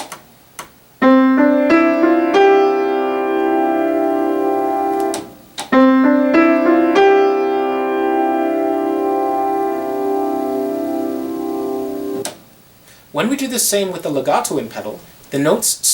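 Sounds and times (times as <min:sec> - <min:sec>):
piano notes ringing into a chord: 0:01.0 - 0:12.2.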